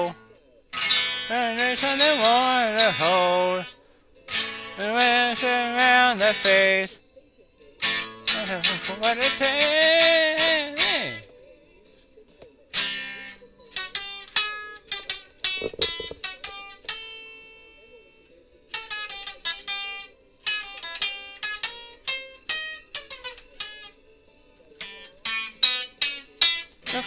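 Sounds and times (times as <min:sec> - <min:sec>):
plucked acoustic string instrument: 0:00.0 - 0:07.0, 0:07.8 - 0:11.3, 0:12.7 - 0:17.8, 0:18.7 - 0:24.1, 0:24.7 - 0:27.0.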